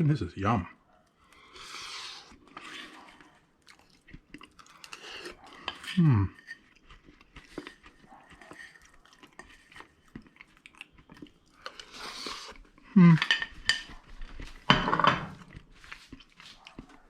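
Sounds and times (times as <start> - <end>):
cutlery clinking on a plate: 13.1 - 14.0, 14.7 - 15.4.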